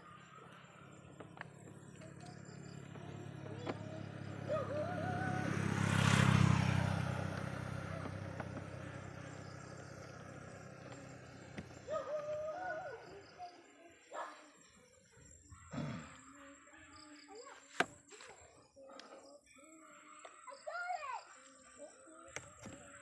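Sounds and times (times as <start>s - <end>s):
motor vehicle passing by: 0.0s - 17.7s.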